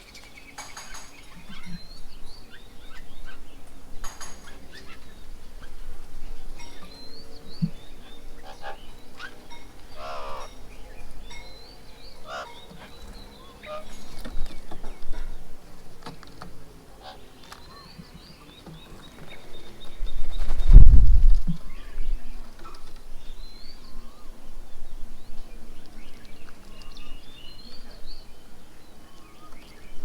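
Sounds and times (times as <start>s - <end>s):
loud full bird call: 0.0s - 20.8s
birds chirping and whistling: 0.0s - 30.0s.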